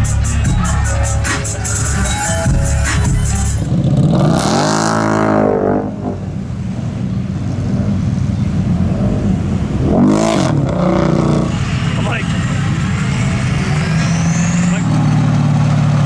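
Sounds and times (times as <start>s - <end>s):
music: 0.0s - 3.7s
truck engine revving: 0.0s - 16.0s.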